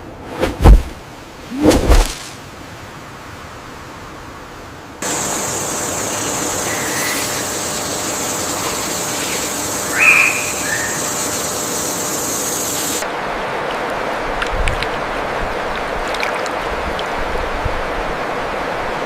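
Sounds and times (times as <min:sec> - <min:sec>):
high-pitched hiss: 0:05.0 - 0:13.0
animal calls: 0:09.2 - 0:11.3.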